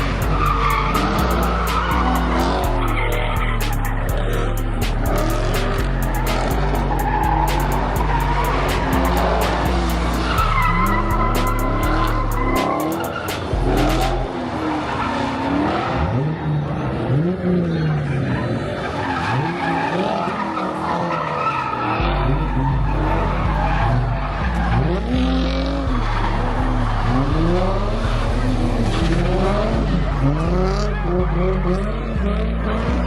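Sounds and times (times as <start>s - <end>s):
tyres squealing: 0.0s - 14.2s
car engines revving: 0.0s - 33.0s
hip-hop music with heavy bass: 0.0s - 33.0s.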